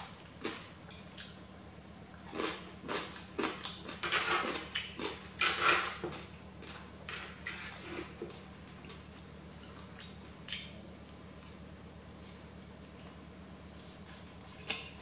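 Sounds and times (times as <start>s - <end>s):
person chewing and slurping noodles: 2.2s - 5.8s.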